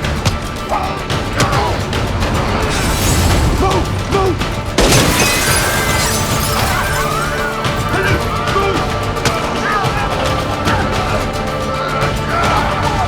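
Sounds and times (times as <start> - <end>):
film score music: 0.0 - 13.0
loud crash and shattering: 1.5 - 8.5.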